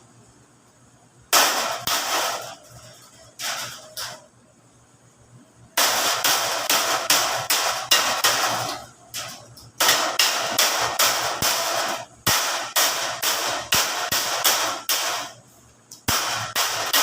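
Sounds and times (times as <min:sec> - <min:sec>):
hammer striking sheet metal: 0:01.3 - 0:04.2, 0:05.8 - 0:15.4, 0:16.0 - 0:17.0.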